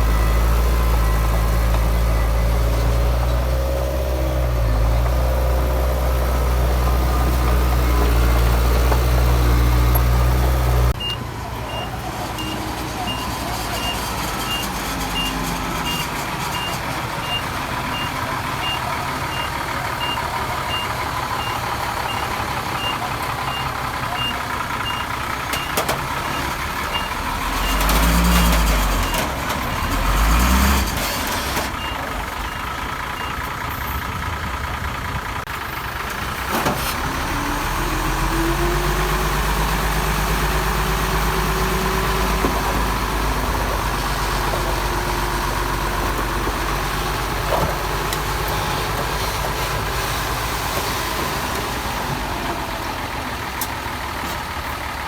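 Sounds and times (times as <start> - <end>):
heavy diesel engine revving: 0.0 - 55.0
running diesel machinery: 0.0 - 55.0
reversing alarm beeps: 11.0 - 27.8.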